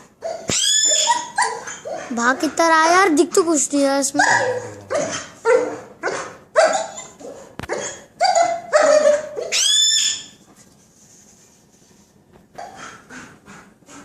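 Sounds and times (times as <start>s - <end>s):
bark-like animal calls: 0.2s - 2.2s, 4.2s - 10.3s.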